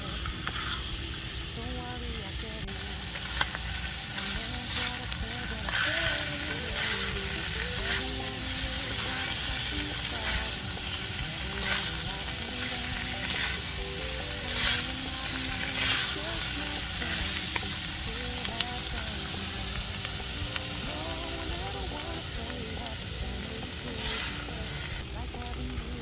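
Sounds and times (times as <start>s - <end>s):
pork sizzling in a wok: 0.0s - 26.0s
wooden spatula scraping wok: 0.3s - 1.0s.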